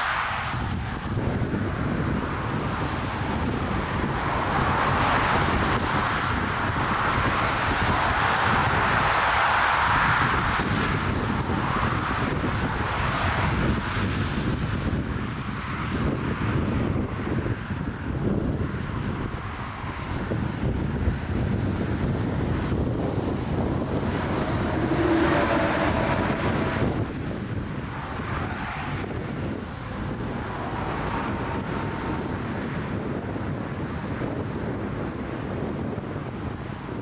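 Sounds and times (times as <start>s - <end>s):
wind buffeting microphone: 0.0s - 37.0s
jet engines whining: 22.3s - 27.8s.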